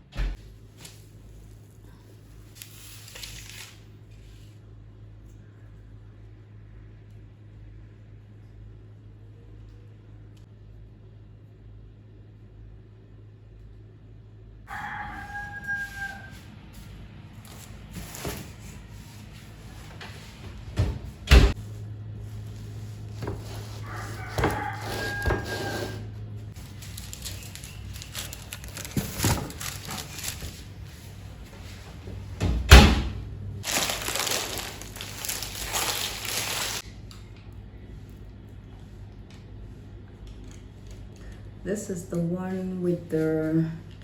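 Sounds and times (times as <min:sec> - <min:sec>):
rooster crowing: 0:14.7 - 0:16.8, 0:23.6 - 0:26.1.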